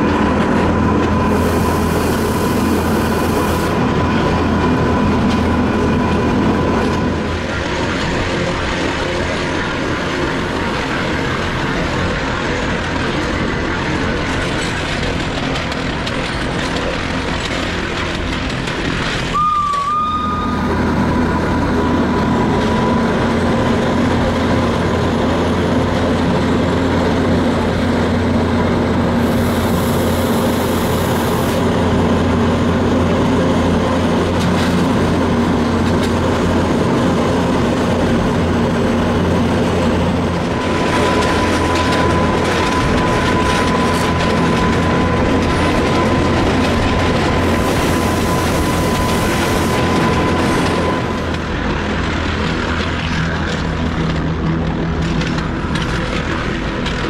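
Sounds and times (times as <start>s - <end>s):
high whine: 0.0s - 13.6s, 17.4s - 57.0s
train running gear rumble: 0.0s - 57.0s.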